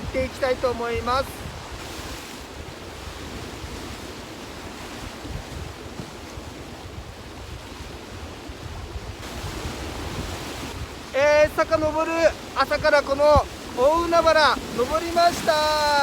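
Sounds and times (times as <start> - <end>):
ocean waves washing: 0.0 - 16.0
wind buffeting microphone: 0.0 - 16.0.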